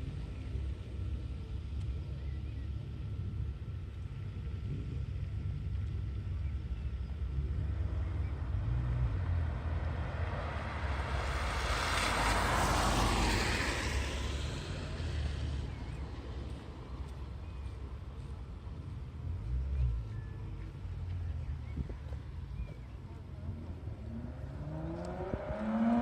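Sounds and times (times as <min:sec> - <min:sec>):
steady low rumble: 0:00.0 - 0:12.2, 0:13.7 - 0:26.0
vehicle passing close by: 0:08.0 - 0:15.9, 0:23.6 - 0:26.0.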